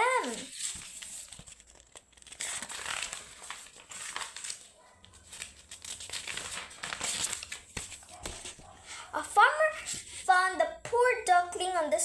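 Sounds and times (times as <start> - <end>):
crinkling and rustling: 0.0 - 9.1.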